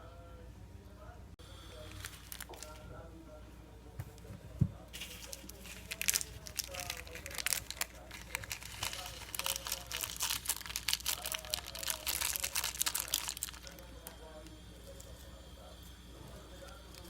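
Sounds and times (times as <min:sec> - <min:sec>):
faint voices: 0:00.0 - 0:17.0
packaging crinkling: 0:01.8 - 0:02.8, 0:05.0 - 0:14.2.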